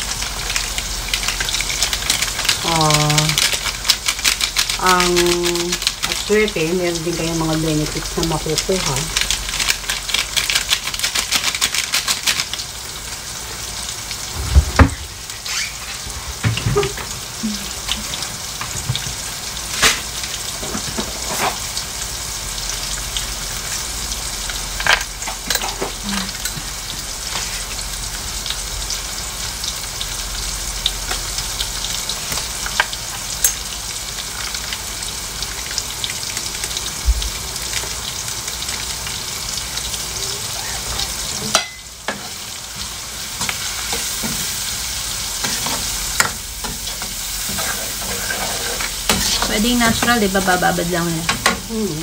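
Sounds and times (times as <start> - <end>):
food sizzling in a wok: 0.0 - 52.0
stirring clatter: 0.5 - 6.2.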